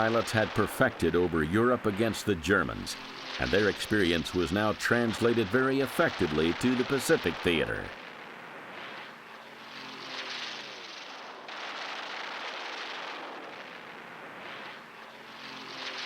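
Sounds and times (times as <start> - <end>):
propeller aircraft passing: 1.0 - 11.9.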